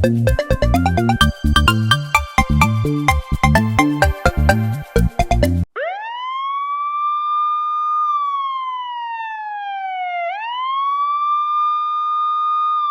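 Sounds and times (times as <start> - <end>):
siren wailing: 5.8 - 12.8.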